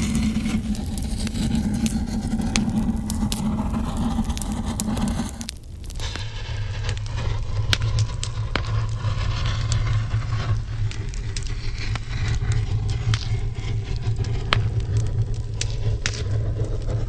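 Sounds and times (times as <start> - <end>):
fire crackles and pops: 0.0 - 6.2, 7.7 - 17.0
fire rushing rumble: 0.0 - 6.2.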